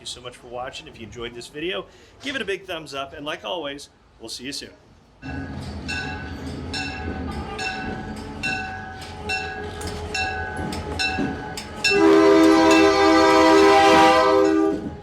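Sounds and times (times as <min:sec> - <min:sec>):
locomotive bell ringing: 0:05.2 - 0:14.8
locomotive air horn: 0:11.8 - 0:15.0.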